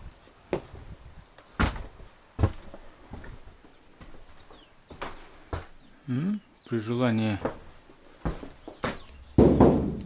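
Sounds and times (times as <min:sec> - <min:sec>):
dull thuds: 0:08.2 - 0:10.0.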